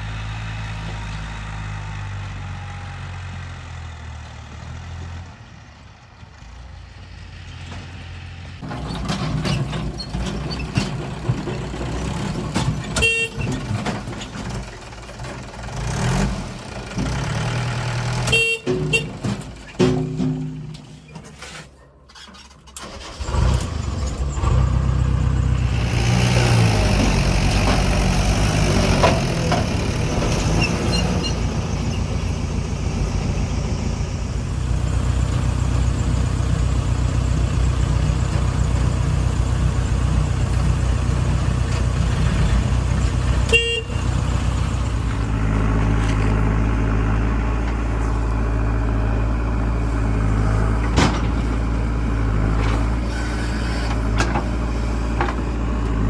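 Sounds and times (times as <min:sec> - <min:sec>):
diesel engines running: 0:00.0 - 0:56.0.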